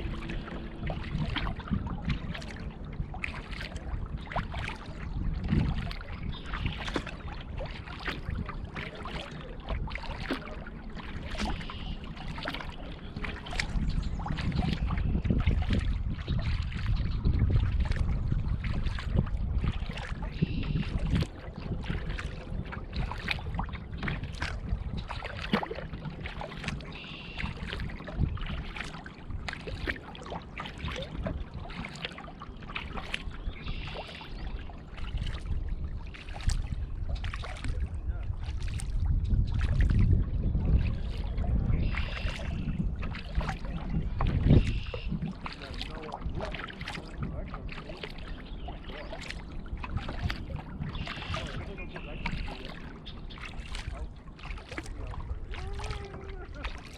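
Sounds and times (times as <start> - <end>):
low rumble: 0.0 - 10.8
kayak paddle strokes: 0.0 - 56.9
water dripping and splashing: 0.0 - 56.9.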